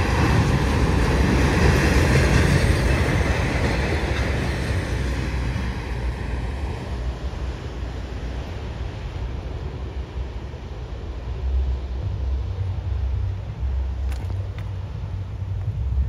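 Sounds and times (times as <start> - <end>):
train rolling on rails: 0.0 - 16.0.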